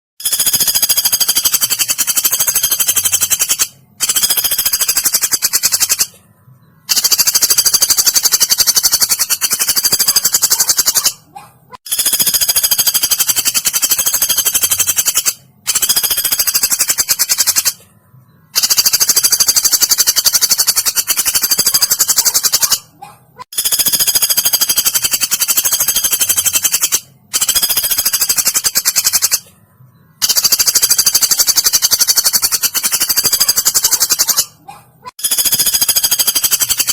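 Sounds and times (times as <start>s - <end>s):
woodpecker rattling trill: 0.2s - 6.2s, 6.8s - 17.8s, 18.5s - 29.5s, 30.2s - 36.9s.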